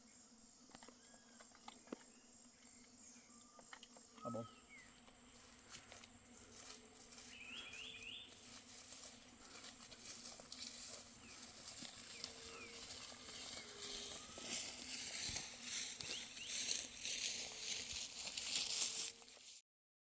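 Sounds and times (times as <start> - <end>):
bird chirping: 0.8 - 5.5, 7.1 - 8.5, 11.2 - 17.3
rustling and crackling handling noises: 4.9 - 19.6.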